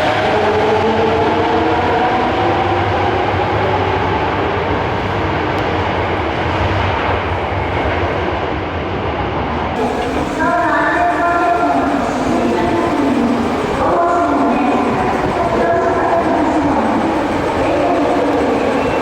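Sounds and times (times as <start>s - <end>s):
subway train wheels rumbling: 0.0s - 19.0s
train motor whine: 9.8s - 19.0s.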